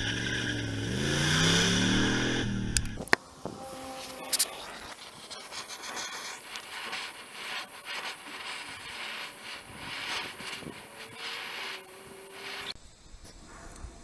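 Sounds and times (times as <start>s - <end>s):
handling rubbing and scraping: 3.0s - 12.8s.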